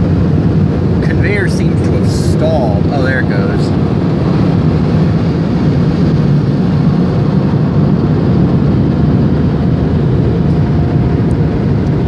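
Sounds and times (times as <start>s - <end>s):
car wash machinery rumbling: 0.0s - 12.0s.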